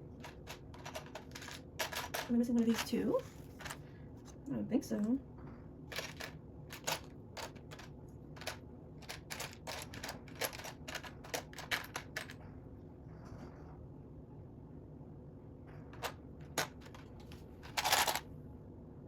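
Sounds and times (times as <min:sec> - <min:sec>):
plastic pieces clicking and clattering: 0:00.2 - 0:03.8, 0:05.9 - 0:12.4, 0:16.0 - 0:18.2.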